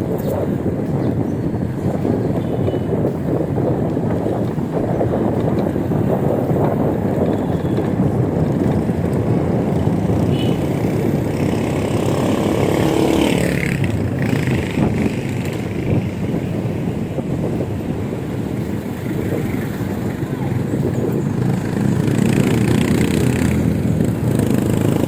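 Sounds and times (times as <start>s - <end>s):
road traffic: 0.0s - 25.0s
wind rushing over microphone: 0.0s - 25.0s
motor vehicle passing: 3.3s - 25.0s.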